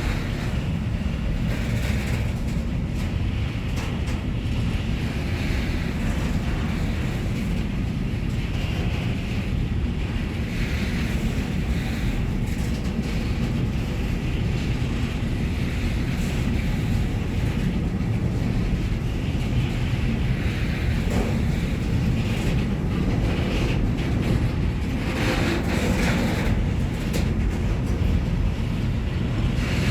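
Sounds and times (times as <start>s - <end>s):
train rumbling past: 0.0s - 29.9s.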